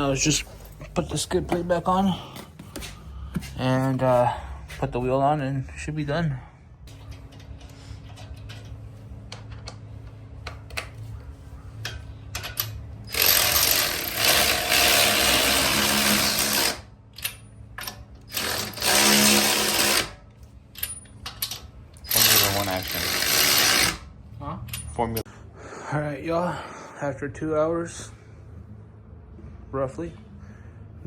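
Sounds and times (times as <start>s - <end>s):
electric ratchet wrench running: 13.0s - 16.9s, 18.2s - 20.2s, 22.0s - 24.1s.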